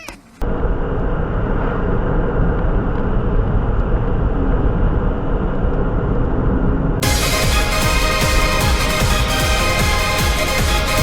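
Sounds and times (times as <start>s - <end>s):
road and engine noise inside car: 0.0s - 7.0s.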